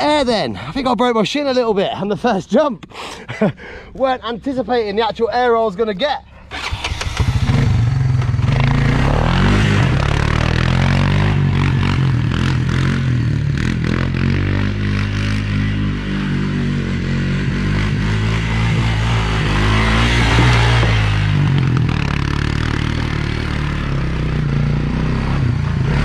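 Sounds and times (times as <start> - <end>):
quad bike engine revving: 6.5 - 26.0.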